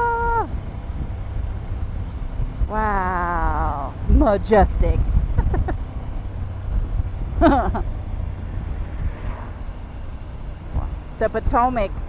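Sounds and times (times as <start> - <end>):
motorcycle engine rumble: 0.0 - 12.0
wind noise on microphone: 0.0 - 12.0.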